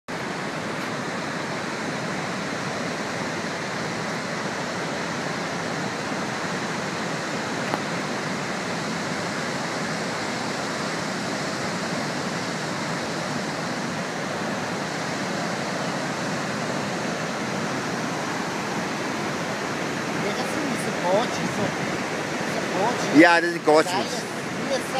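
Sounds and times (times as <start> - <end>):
waterfall rushing: 0.1 - 24.9.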